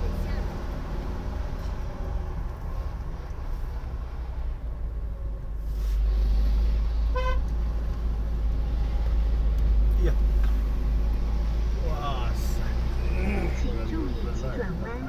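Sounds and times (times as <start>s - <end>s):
road vehicle rumble: 0.0s - 15.0s
vehicle horn toot: 7.1s - 7.4s.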